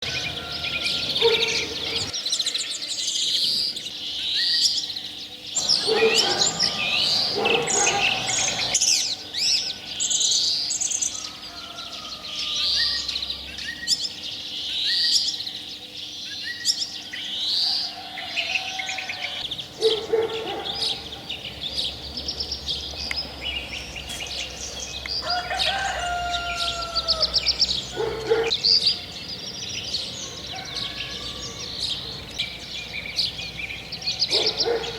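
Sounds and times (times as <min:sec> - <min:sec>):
songbirds chirping and trilling: 0:00.0 - 0:34.9.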